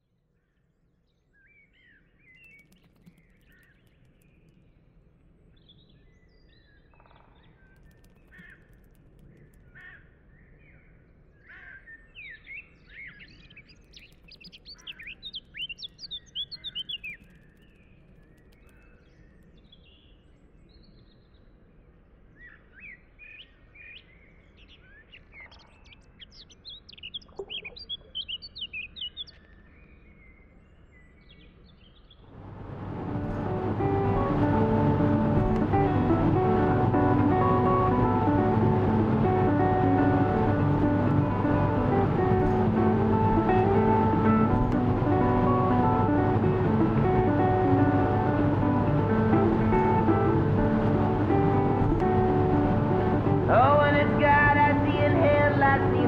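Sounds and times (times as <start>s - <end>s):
faint outdoor hiss: 12.0s - 56.0s.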